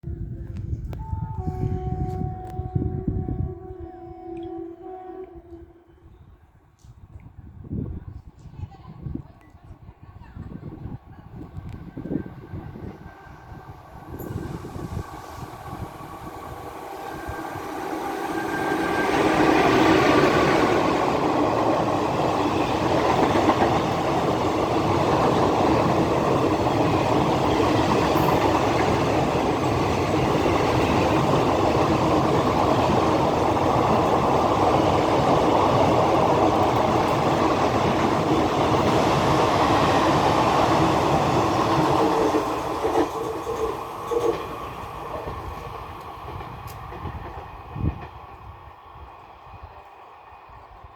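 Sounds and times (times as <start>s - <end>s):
train wheels rushing on rails: 10.4s - 50.9s.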